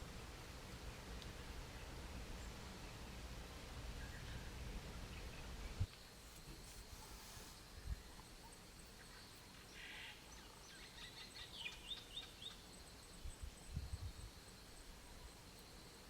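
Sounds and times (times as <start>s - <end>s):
faint bird chirps: 3.9s - 16.0s.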